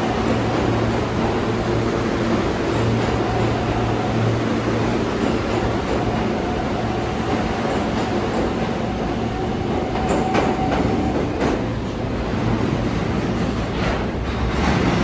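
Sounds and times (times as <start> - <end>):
subway train rumbling: 0.0 - 15.0.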